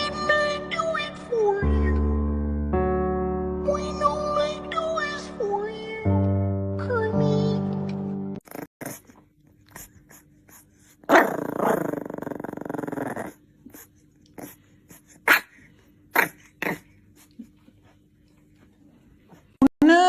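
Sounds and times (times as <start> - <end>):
dog growling: 8.4 - 9.2, 9.8 - 15.5, 16.1 - 17.5
dog barking: 15.2 - 15.6.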